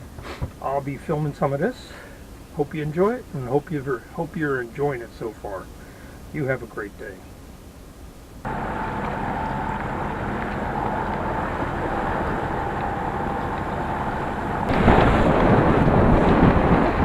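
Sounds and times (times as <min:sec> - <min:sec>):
steady rumble: 0:08.2 - 0:17.0
rushing water: 0:08.4 - 0:17.0
wind buffeting microphone: 0:08.5 - 0:17.0.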